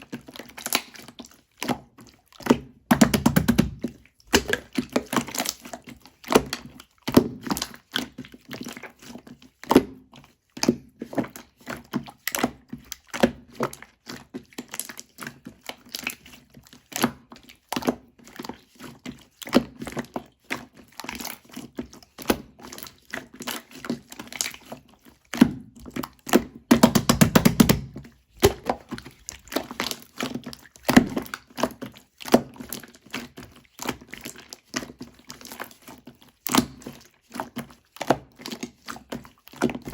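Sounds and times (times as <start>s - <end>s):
slime squelching and popping: 0.2s - 9.0s, 19.5s - 39.9s.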